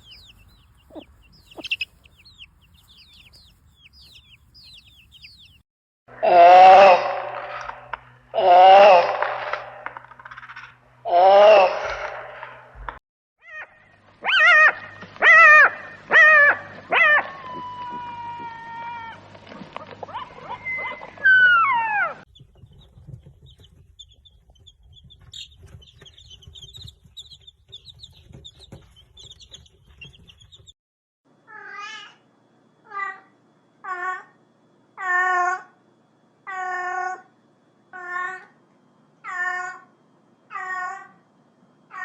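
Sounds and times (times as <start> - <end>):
cats meowing: 0.0 - 5.6
faint high twittering: 0.0 - 5.6.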